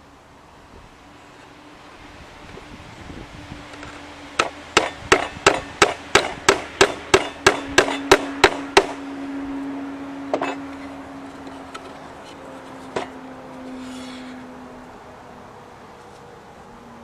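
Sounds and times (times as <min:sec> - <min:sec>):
hammer driving nail into wood: 0:04.4 - 0:09.0.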